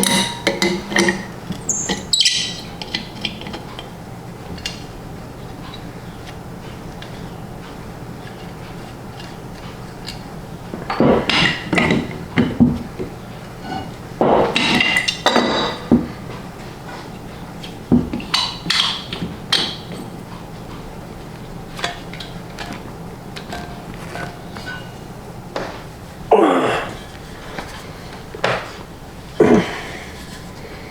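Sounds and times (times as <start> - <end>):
metal tools clanking on metal: 0.0 - 4.9, 13.6 - 16.2, 17.9 - 20.4, 21.8 - 25.9.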